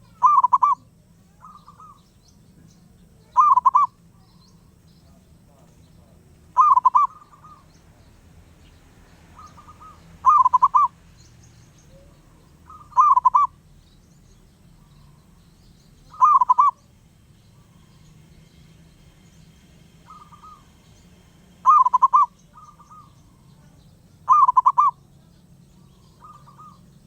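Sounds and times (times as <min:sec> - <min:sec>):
doves cooing: 0:00.0 - 0:08.2, 0:09.2 - 0:11.0, 0:11.9 - 0:13.8, 0:16.0 - 0:18.2, 0:20.0 - 0:20.8, 0:21.6 - 0:27.0.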